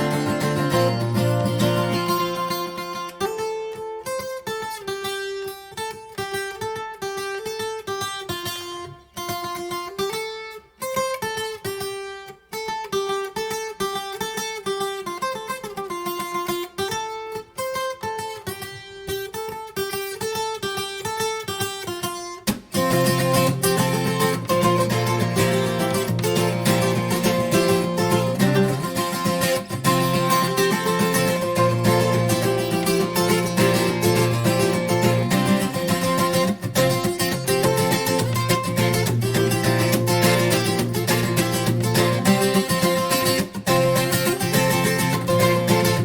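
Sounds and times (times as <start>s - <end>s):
acoustic guitar playing: 0.0s - 46.0s.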